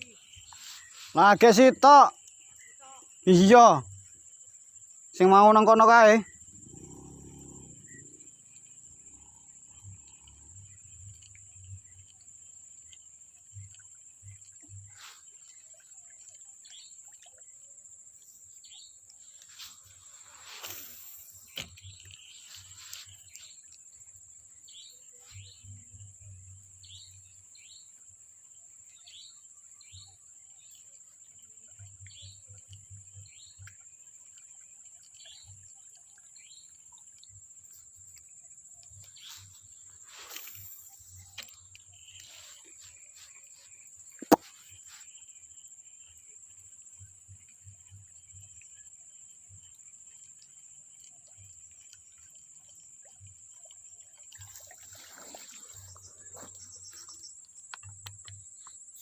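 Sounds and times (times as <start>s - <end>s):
short chirps: 44.2s - 44.7s.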